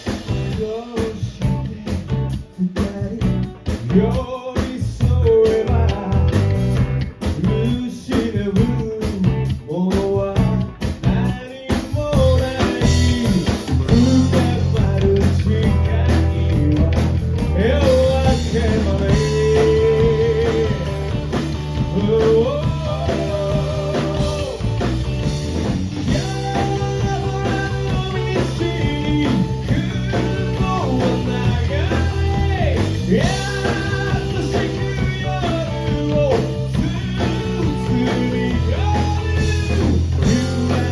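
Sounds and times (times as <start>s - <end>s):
live rock band playing: 0.0s - 40.9s
person singing: 7.4s - 24.9s, 26.1s - 40.9s.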